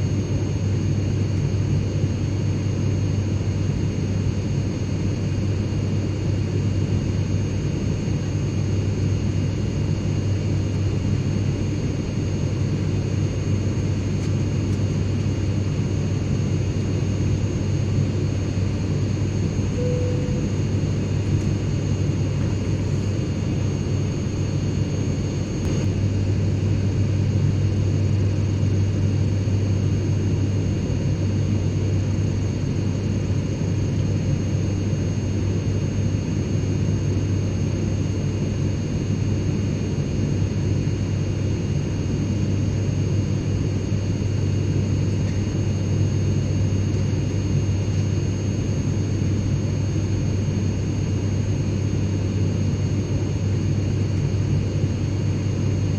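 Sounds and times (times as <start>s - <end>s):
airplane cabin drone: 0.0s - 55.9s
faint high-pitched tones: 19.8s - 20.6s.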